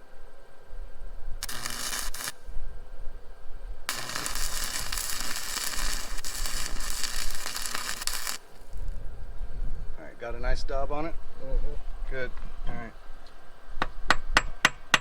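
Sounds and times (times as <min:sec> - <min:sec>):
welding arc crackling: 0:01.4 - 0:02.5, 0:03.9 - 0:08.9.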